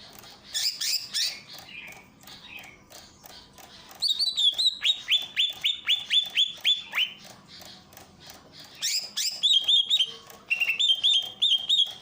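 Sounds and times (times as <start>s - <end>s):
bird singing sharp downward notes: 4.0s - 7.9s, 8.6s - 12.0s.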